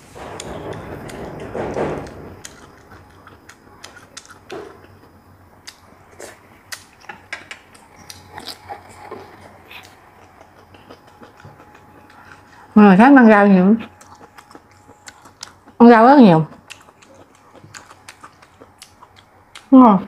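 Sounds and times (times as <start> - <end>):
person chewing food: 0.4 - 12.8, 13.8 - 15.8, 16.5 - 19.7
wet mouth clicks and smacks: 14.0 - 15.8, 16.5 - 19.7.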